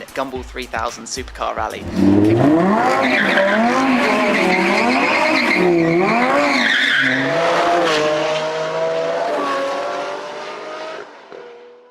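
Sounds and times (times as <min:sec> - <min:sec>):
sports car engine revving: 0:01.7 - 0:11.9.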